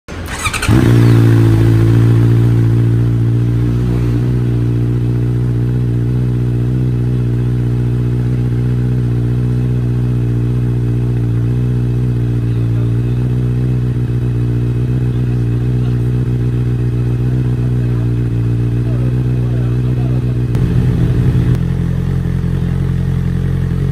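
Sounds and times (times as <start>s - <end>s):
motorcycle engine starting: 0.1s - 7.2s, 20.4s - 23.9s
motorcycle engine idling: 0.1s - 23.9s.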